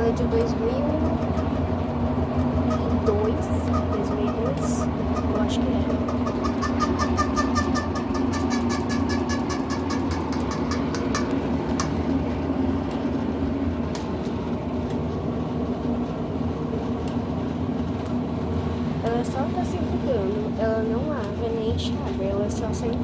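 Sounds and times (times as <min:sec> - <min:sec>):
rapid regular ticking: 0:00.0 - 0:12.0
washing machine spinning: 0:00.0 - 0:23.0.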